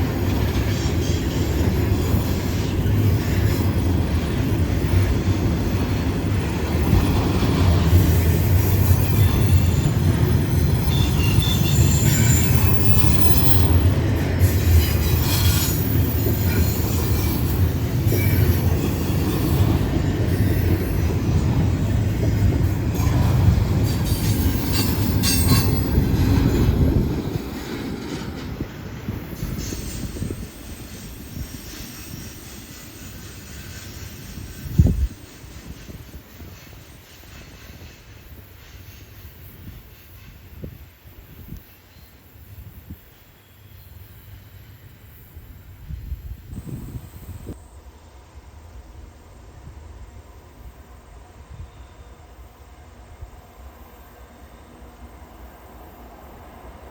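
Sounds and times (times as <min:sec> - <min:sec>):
train wheels rumbling on rail: 0:00.0 - 0:56.9
wheel squeals and clacks: 0:08.0 - 0:19.8, 0:22.9 - 0:26.7.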